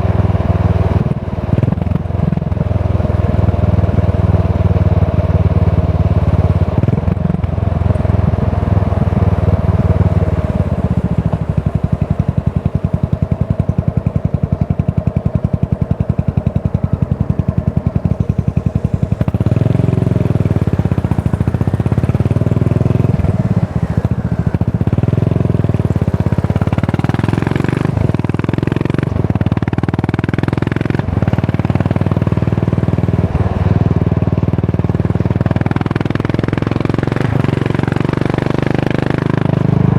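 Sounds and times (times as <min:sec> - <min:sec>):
single-cylinder motorcycle engine thumping: 0:00.0 - 0:39.9.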